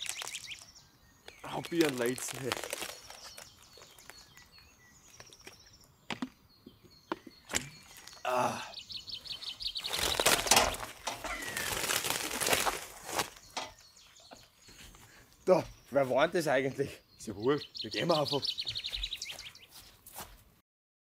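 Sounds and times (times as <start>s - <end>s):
plastic tape crinkling and tearing: 0.0s - 0.7s, 1.4s - 4.5s, 9.8s - 13.7s
birds chirping: 0.0s - 20.1s.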